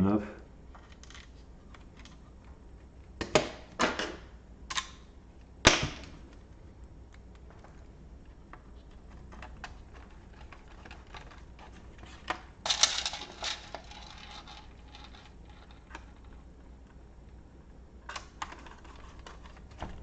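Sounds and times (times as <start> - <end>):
laptop parts clicking and rattling: 0.7 - 2.5, 7.2 - 16.9, 18.0 - 20.0.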